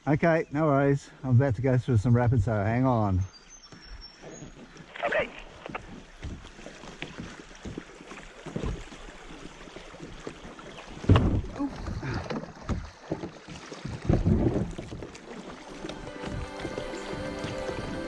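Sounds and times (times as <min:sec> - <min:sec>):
water splashing against kayak: 0:03.4 - 0:18.0
knocks on kayak hull: 0:11.0 - 0:11.6.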